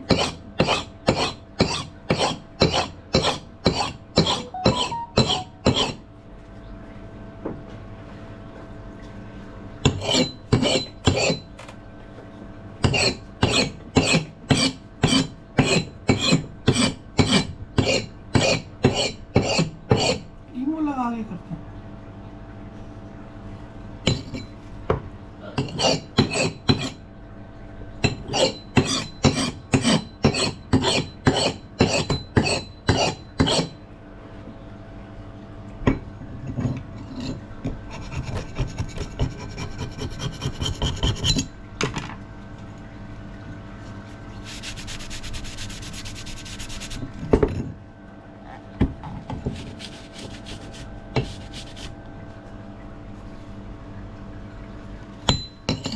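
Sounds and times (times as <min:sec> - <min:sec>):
axe head rasping by hand: 0:00.0 - 0:06.0, 0:09.9 - 0:11.5, 0:12.8 - 0:20.3, 0:25.6 - 0:27.0, 0:28.0 - 0:33.8, 0:37.9 - 0:41.5, 0:49.5 - 0:51.9.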